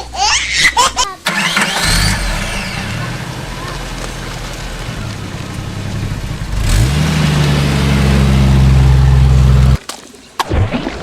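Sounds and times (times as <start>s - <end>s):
engine revving: 1.3s - 9.8s.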